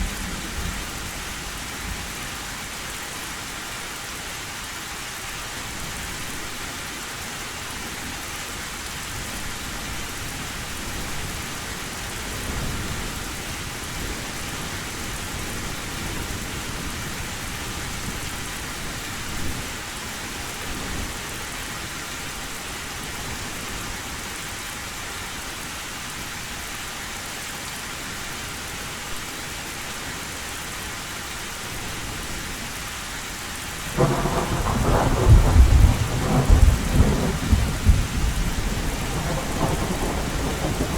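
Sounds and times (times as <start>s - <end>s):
loud thunderclap: 0.0s - 2.1s, 34.0s - 40.9s
low thunder rumbling: 0.0s - 2.6s, 33.9s - 40.9s
heavy rain on a tin roof: 0.0s - 40.9s.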